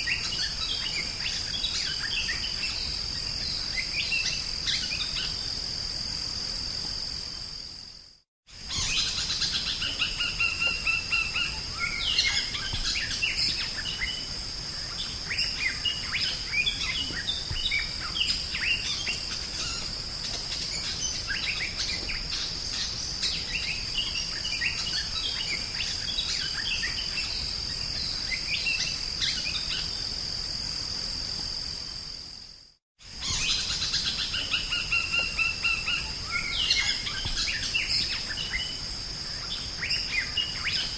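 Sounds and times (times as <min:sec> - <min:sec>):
bird whistling and chirping: 0:08.7 - 0:19.9, 0:33.2 - 0:38.8.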